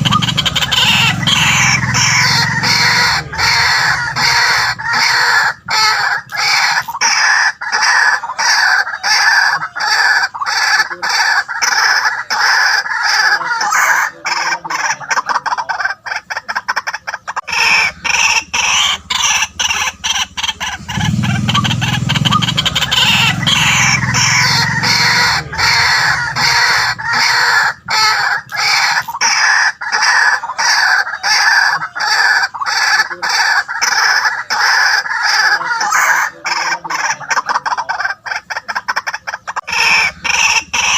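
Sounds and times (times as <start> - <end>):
bird calling harsh repeated notes: 0.0 - 40.9
low rumble: 17.5 - 28.8.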